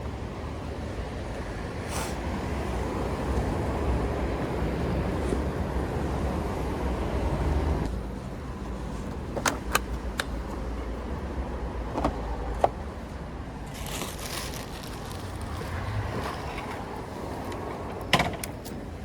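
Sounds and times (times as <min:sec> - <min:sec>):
brief hiss: 0:01.9 - 0:02.2
sharp clicks and knocks: 0:09.1 - 0:10.7.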